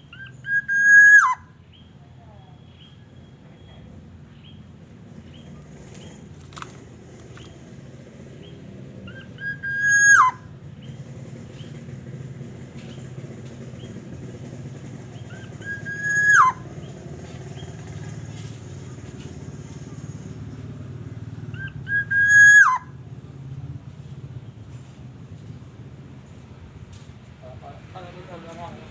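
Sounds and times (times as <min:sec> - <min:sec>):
oriole whistling: 0:00.1 - 0:01.5, 0:09.1 - 0:10.5, 0:15.3 - 0:17.0, 0:21.5 - 0:23.0.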